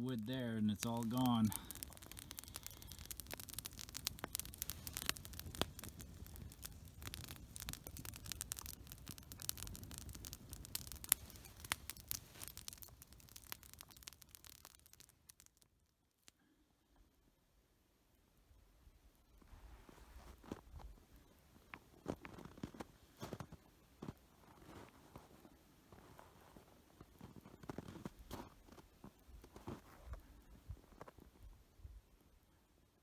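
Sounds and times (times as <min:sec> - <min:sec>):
crackling and rustling: 0:00.0 - 0:16.4, 0:19.4 - 0:31.5.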